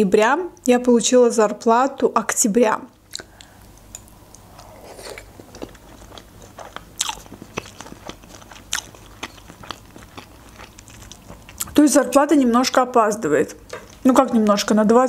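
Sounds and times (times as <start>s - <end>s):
wet chewing clicks and smacks: 3.1s - 4.7s, 5.5s - 11.8s.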